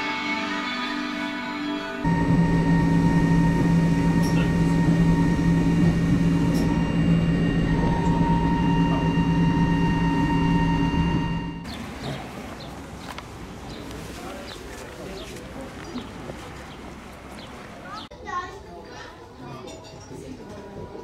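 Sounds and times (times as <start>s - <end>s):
electric train whine: 0.0s - 12.8s
low train rumble: 2.0s - 18.1s.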